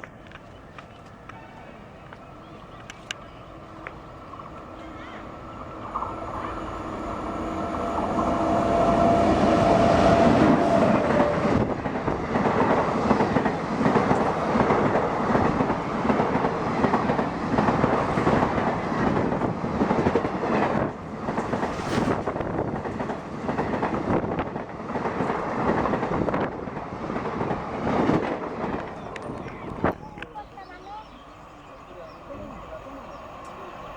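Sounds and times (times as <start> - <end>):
locomotive passing: 0.0 - 33.9
train wheels clickety-clack: 2.1 - 30.9.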